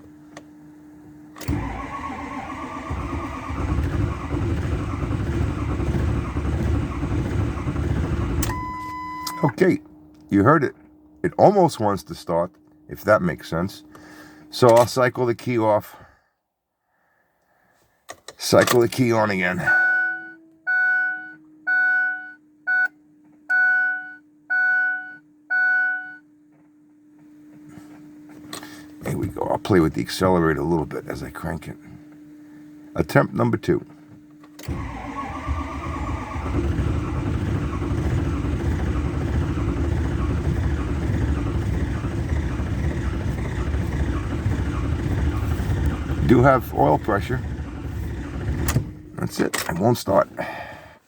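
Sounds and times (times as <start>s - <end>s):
diesel engine cranking: 1.4s - 11.0s, 34.6s - 50.8s
faint steady hum: 8.4s - 51.0s.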